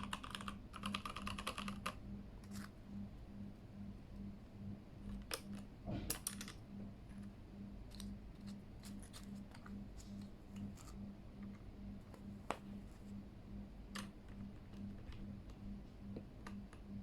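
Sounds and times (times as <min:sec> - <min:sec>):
mechanical keyboard clicks: 0:00.0 - 0:02.0.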